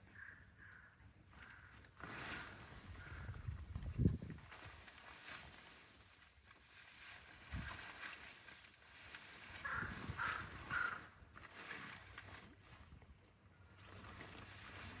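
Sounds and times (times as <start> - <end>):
animal calling: 9.6 - 11.1.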